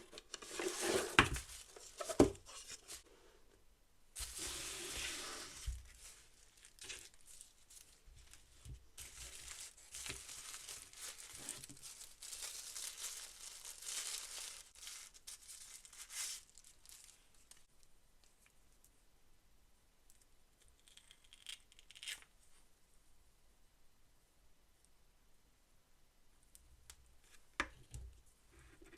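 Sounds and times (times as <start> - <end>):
packaging tearing and crinkling: 9.0 - 17.6.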